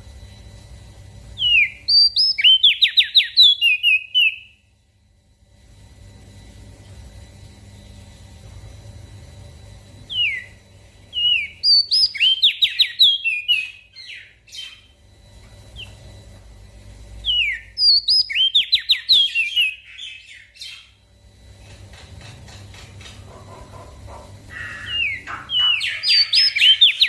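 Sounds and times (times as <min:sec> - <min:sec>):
bird singing whistled phrases: 0:01.4 - 0:04.6, 0:10.1 - 0:10.5, 0:11.2 - 0:14.9, 0:17.2 - 0:20.9, 0:24.7 - 0:27.0.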